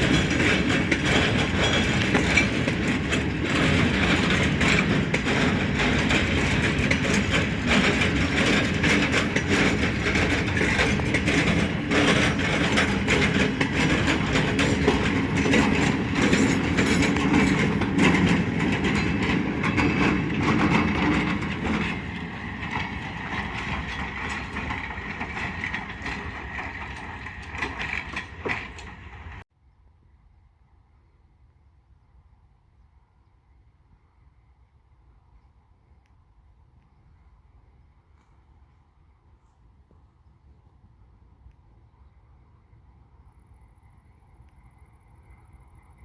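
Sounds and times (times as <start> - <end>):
freight train wagons rolling: 0.0 - 29.4
wheels clattering over rail joints: 0.0 - 29.4.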